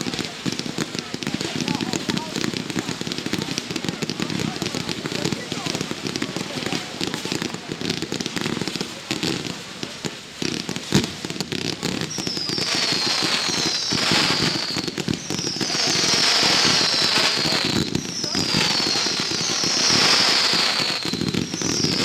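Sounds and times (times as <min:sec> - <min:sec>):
fireworks crackling: 0:00.0 - 0:22.0
firework whistles gliding down: 0:11.9 - 0:22.0.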